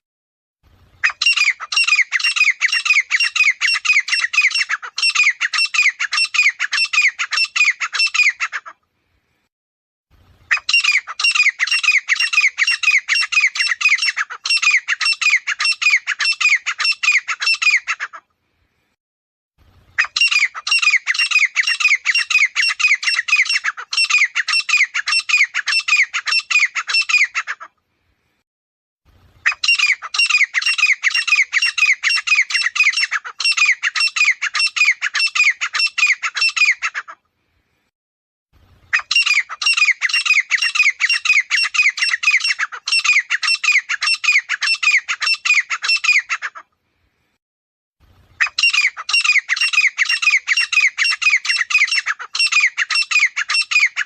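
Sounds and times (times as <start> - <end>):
francolin calling: 48.4 - 54.0.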